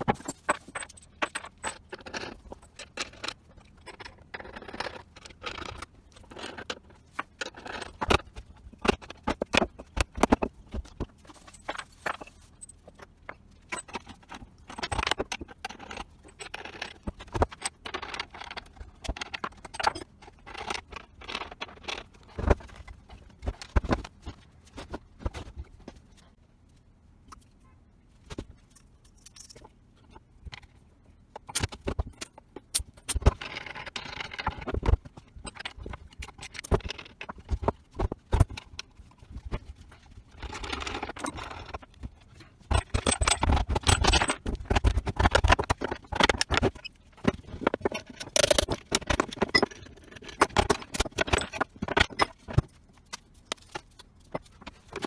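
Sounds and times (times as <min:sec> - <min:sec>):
tools clinking and knocking: 0:00.0 - 0:25.5, 0:42.7 - 0:52.7.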